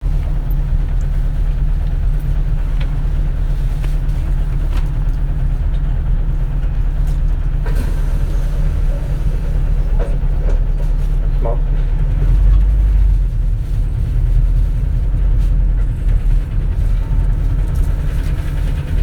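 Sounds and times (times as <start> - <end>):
bus engine droning: 0.0 - 19.0.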